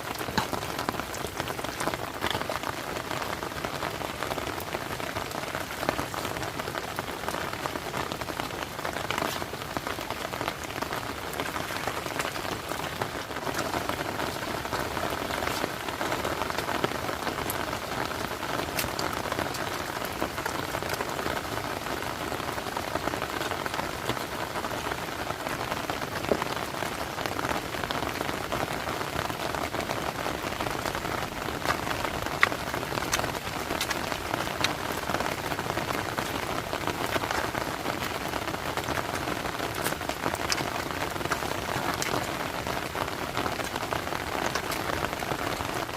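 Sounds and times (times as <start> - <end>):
raindrop clicks: 0.0 - 45.9.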